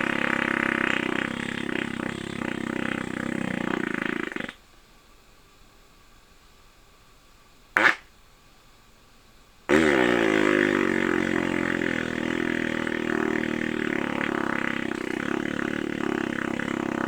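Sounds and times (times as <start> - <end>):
buzzing rasping blat: 0.0 - 4.5, 9.7 - 17.0.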